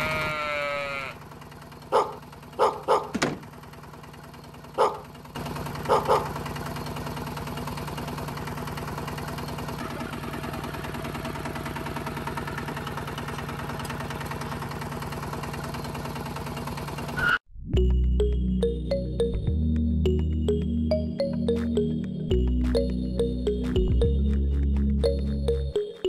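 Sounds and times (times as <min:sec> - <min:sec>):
short animal calls: 0:00.0 - 0:01.2.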